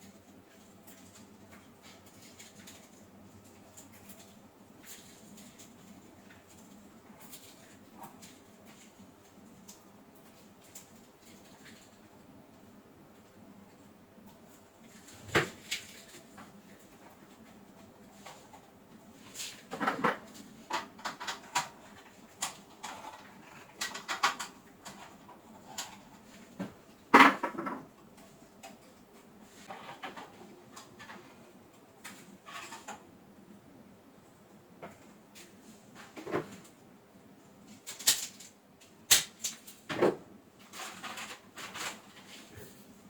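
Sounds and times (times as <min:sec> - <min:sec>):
hard objects clicking and knocking: 0:19.6 - 0:33.1.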